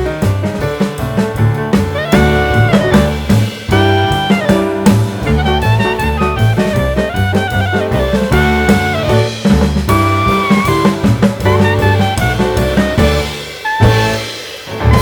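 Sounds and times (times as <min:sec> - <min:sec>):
upbeat jazzy music: 0:00.0 - 0:15.0.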